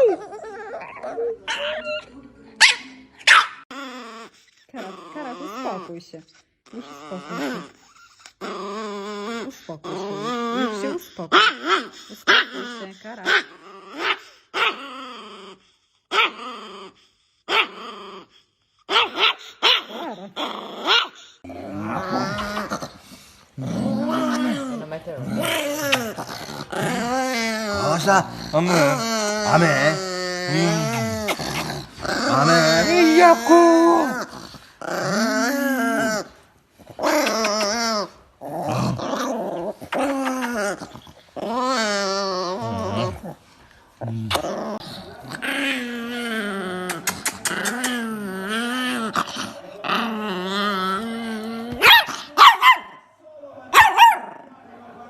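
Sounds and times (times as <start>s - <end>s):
small dog growling: 3.6s - 53.0s.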